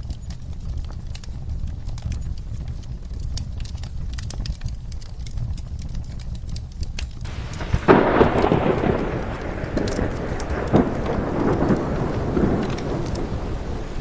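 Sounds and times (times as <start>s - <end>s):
steady low rumble: 0.0s - 14.0s
wood fire crackling and popping: 0.0s - 14.0s
rain hiss: 7.2s - 14.0s
thunder roll: 7.3s - 14.0s.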